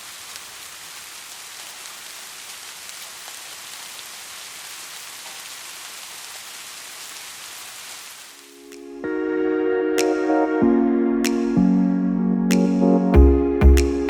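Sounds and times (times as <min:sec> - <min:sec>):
steady rain hiss: 0:00.0 - 0:10.4.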